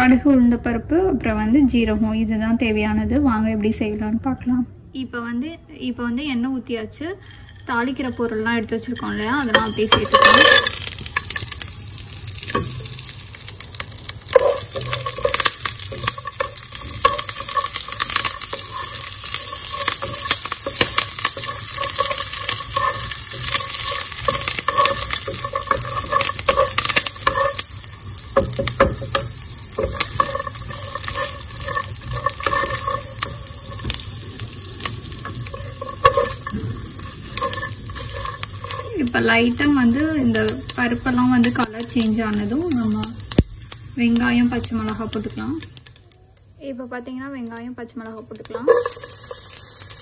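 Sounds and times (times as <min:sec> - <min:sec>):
wooden spatula scraping pan: 0:07.3 - 0:11.3, 0:14.2 - 0:41.5
spices sizzling in hot oil: 0:07.3 - 0:50.0
oil popping and crackling: 0:09.0 - 0:46.6, 0:47.4 - 0:50.0.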